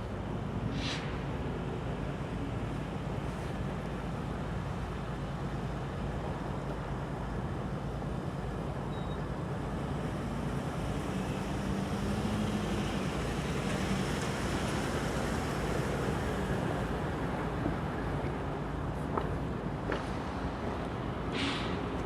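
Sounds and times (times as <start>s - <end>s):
diesel locomotive rumbling: 0.0s - 10.4s, 15.4s - 22.0s.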